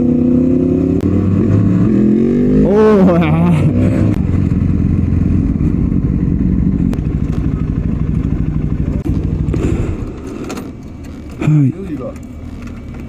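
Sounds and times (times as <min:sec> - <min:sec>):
motorcycle engine idling: 0:04.2 - 0:13.0.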